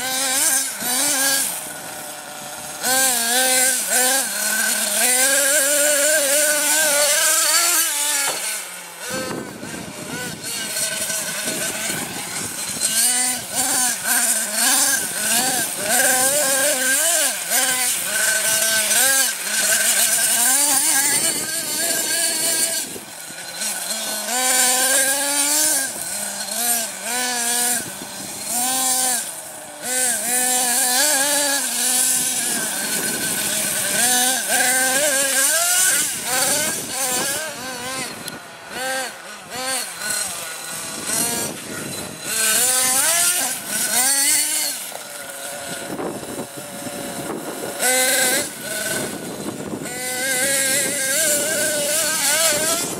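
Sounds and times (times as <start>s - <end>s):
small engine revving: 0.0s - 52.9s.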